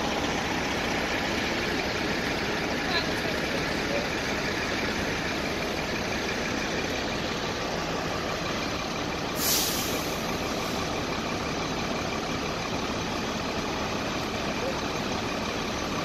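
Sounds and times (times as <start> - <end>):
diesel engine idling: 0.0 - 16.0
air hiss release: 9.4 - 10.4.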